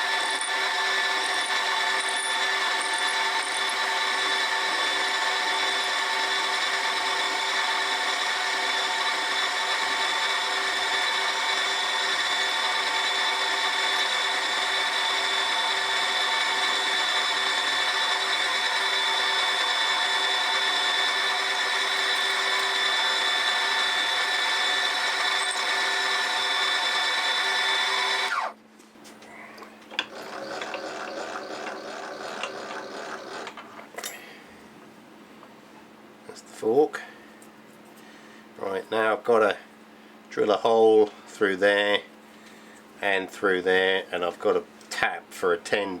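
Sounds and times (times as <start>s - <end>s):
milling machine cutting metal: 0.0s - 28.5s, 30.0s - 33.6s.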